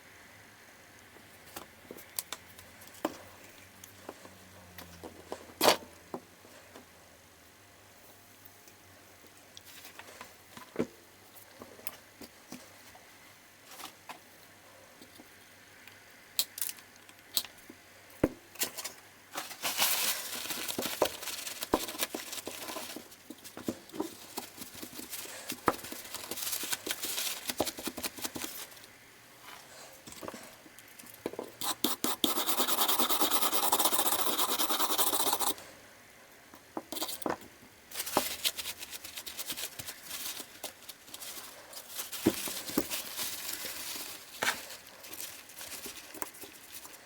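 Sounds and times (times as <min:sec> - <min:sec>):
scratchy rustling: 0:37.9 - 0:47.0.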